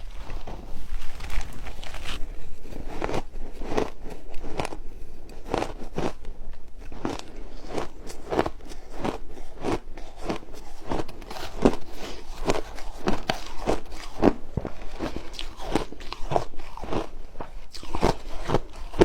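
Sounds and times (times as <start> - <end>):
ice crunching being chewed: 0.0 - 19.0.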